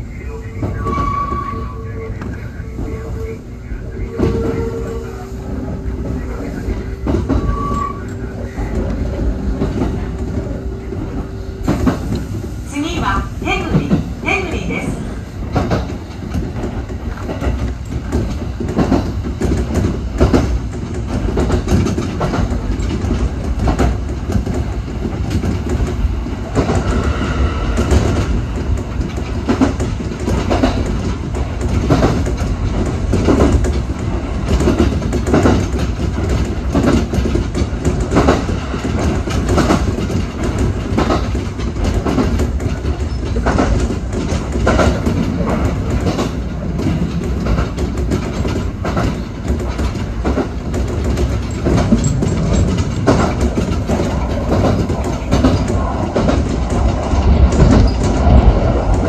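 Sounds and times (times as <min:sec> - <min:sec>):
electric train running: 0:00.0 - 0:59.0
wheels clacking over rail joints: 0:15.4 - 0:59.0.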